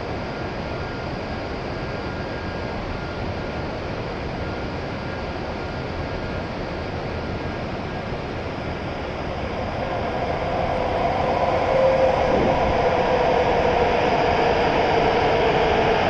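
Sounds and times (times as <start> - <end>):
approaching train rumble: 7.2 - 16.0.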